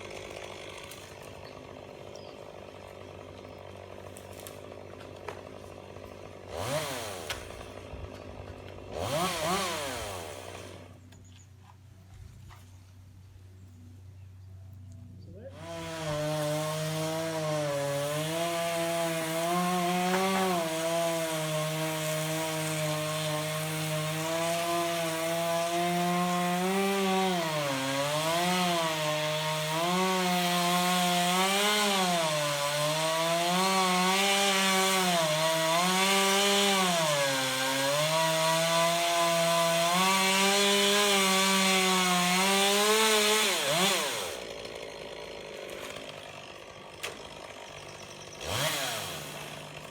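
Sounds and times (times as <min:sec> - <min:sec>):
chainsaw cutting wood: 0:00.0 - 0:11.3, 0:15.5 - 0:49.9.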